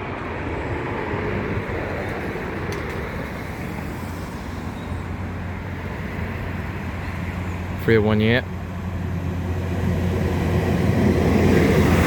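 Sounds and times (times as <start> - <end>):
diesel train engine drone: 0.0 - 12.0.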